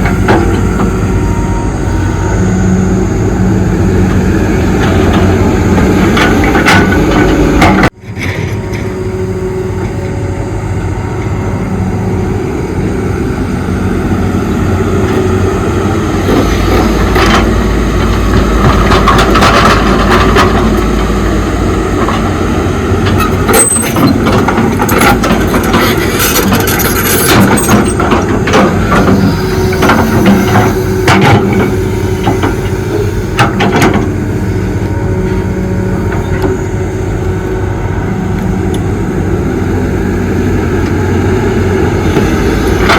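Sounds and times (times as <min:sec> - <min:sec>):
excavator diesel engine: 0:00.0 - 0:42.9
digging clanks and knocks: 0:16.3 - 0:20.9, 0:23.0 - 0:32.8.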